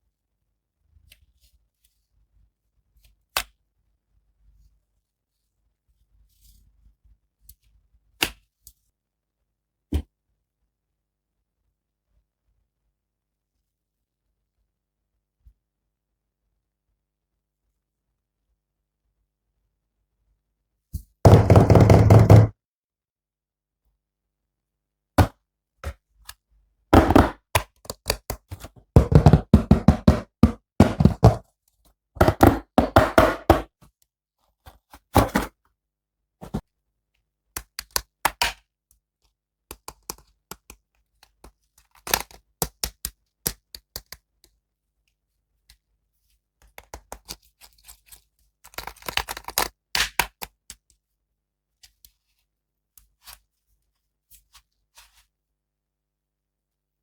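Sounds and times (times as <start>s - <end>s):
plastic toy figures clicking and knocking: 27.0s - 31.4s.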